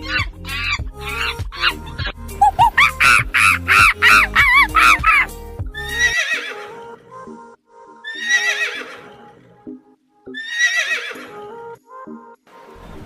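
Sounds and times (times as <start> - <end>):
background music: 0.0 - 13.0
animal's high wavering call: 2.4 - 5.3.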